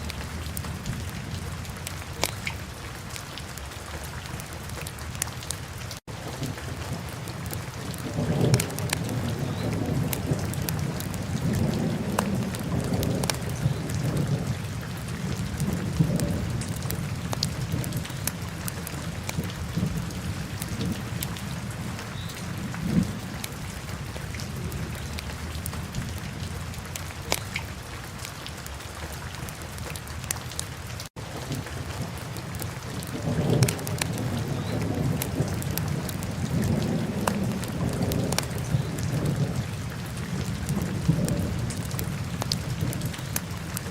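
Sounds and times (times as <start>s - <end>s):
fire crackles and pops: 1.8s - 2.6s, 4.7s - 14.5s, 15.3s - 21.4s, 26.9s - 28.8s, 29.8s - 39.6s, 40.4s - 43.9s.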